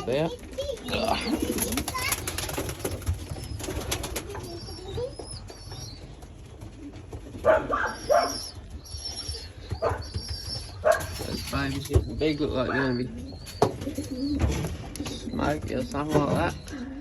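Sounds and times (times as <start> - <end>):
wings flapping: 0.0 - 12.1
pigeons calling: 0.0 - 17.0.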